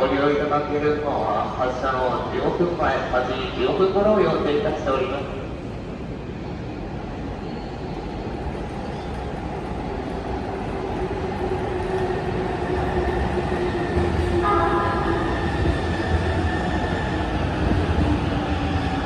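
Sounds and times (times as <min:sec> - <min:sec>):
electric train whine: 0:05.5 - 0:19.0.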